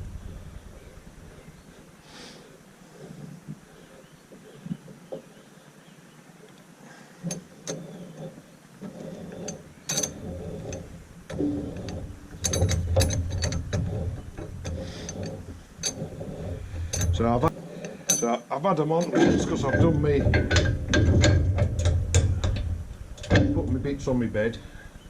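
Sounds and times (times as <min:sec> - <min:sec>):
low rumble: 0:00.0 - 0:02.0
metal chains clinking: 0:09.0 - 0:23.6.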